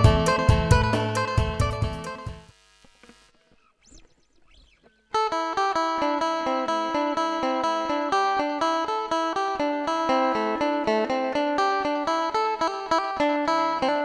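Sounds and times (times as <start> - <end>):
plucked lute melody over drone: 5.2 - 14.0.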